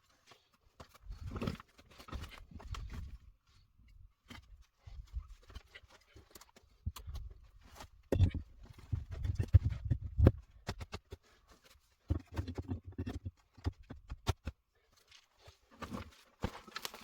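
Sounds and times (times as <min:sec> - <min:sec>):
knocks and clicks of objects handled: 0:03.9 - 0:17.0.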